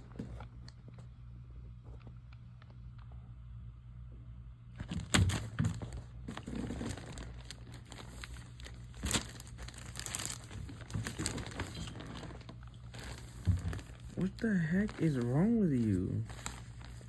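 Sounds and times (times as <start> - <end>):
wrapper crinkling and rustling: 4.8 - 17.0.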